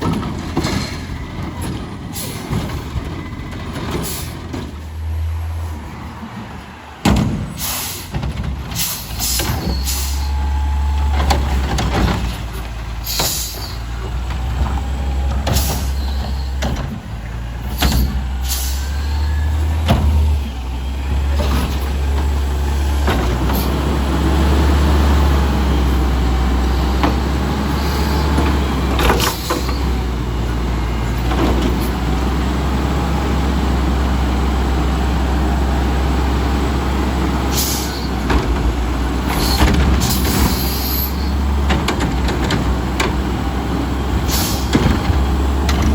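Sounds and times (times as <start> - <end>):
clanks and knocks: 0.0 - 4.8, 11.1 - 18.4, 38.1 - 43.4, 44.2 - 45.9
garbage truck diesel engine: 0.0 - 45.9
air-brake hisses: 7.6 - 8.2, 8.8 - 10.5, 13.0 - 13.9, 17.7 - 19.4, 37.5 - 38.1, 44.3 - 44.7.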